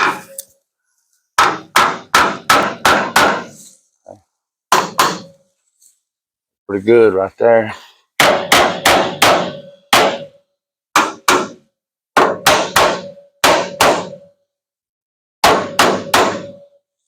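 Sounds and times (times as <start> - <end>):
hammer striking sheet metal: 1.4 - 3.6, 4.7 - 5.4, 8.2 - 14.3, 15.4 - 16.8.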